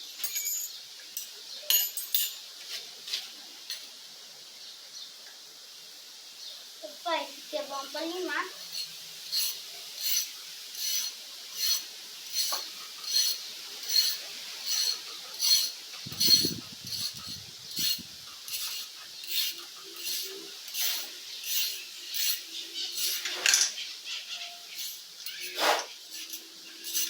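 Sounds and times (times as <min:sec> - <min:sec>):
hand file rasping on steel: 0:08.5 - 0:23.4, 0:24.2 - 0:27.0.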